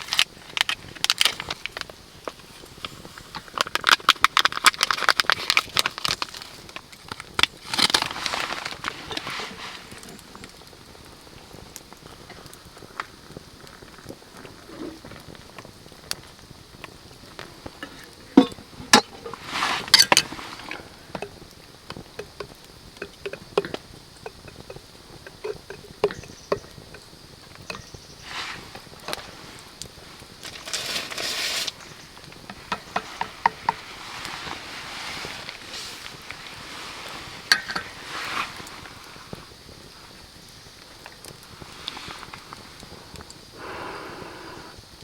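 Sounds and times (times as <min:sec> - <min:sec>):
rain pattering on a tarp: 0:00.0 - 0:45.0
short hissing rushes: 0:18.7 - 0:21.1, 0:28.2 - 0:40.1.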